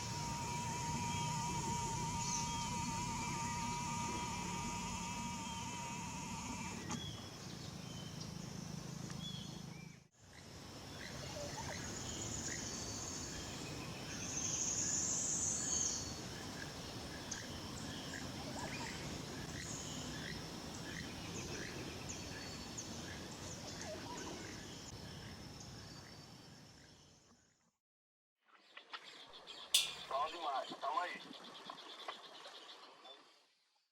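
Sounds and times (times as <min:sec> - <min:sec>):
buzzing insect call: 0:00.0 - 0:07.1
high insect hiss: 0:00.0 - 0:07.5, 0:10.2 - 0:27.1.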